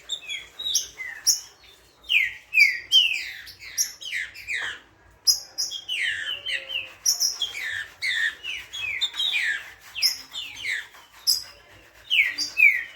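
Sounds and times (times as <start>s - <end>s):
bird singing whistled notes: 2.1s - 12.9s.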